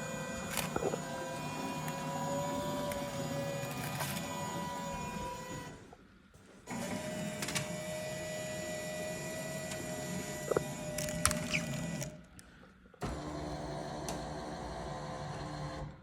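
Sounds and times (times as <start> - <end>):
machine motor hum and whine: 0.0 - 6.0, 6.7 - 12.2.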